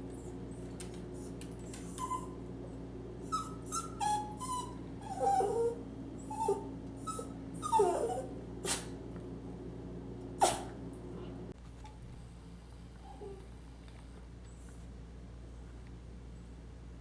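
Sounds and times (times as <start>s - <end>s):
dog whining: 0.1s - 9.0s, 10.4s - 11.3s, 13.0s - 13.5s
dog breathy puffs: 8.6s - 9.0s.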